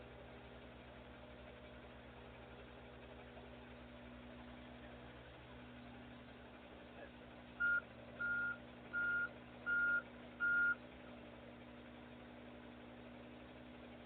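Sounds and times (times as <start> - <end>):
truck reversing alarm beeping: 7.6 - 10.8.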